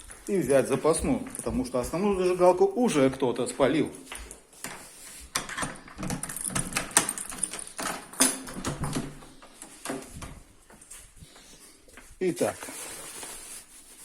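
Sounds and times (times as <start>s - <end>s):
objects clicking and rattling: 4.6s - 10.8s.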